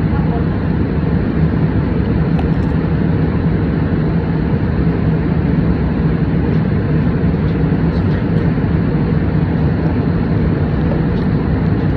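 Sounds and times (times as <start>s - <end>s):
airliner cabin drone: 0.0s - 11.9s.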